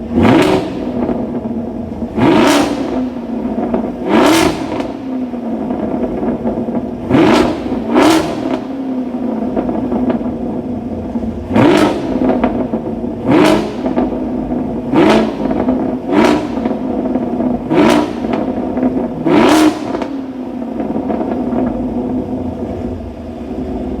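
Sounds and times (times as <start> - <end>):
car engine revving and idling: 0.0 - 24.0.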